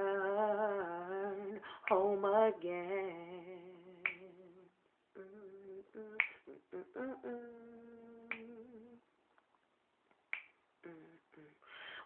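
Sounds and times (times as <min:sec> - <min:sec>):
person singing wordless notes: 0:00.0 - 0:09.1, 0:10.8 - 0:11.7
finger snaps: 0:01.8 - 0:02.1, 0:04.0 - 0:04.4, 0:06.1 - 0:06.6, 0:08.2 - 0:08.8, 0:10.1 - 0:11.0.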